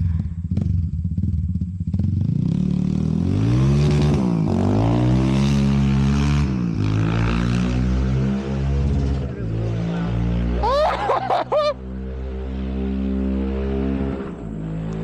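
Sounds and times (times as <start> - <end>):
loud engine accelerating hard: 2.4 - 15.0.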